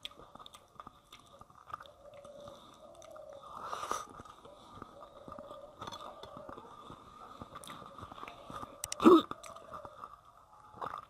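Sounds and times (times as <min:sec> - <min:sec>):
person chewing food: 0:00.0 - 0:04.3.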